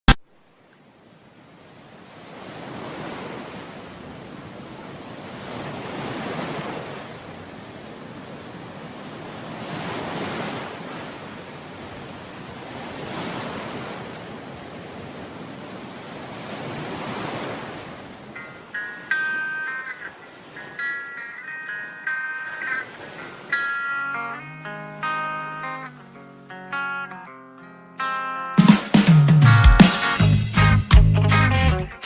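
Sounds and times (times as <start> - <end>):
ocean waves washing in: 1.2 - 26.5.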